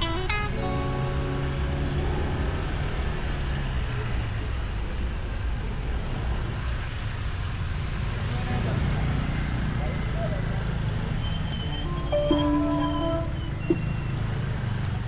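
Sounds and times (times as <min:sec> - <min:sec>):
background music: 0:00.0 - 0:02.9, 0:11.7 - 0:13.6
road and traffic noise: 0:00.0 - 0:15.0.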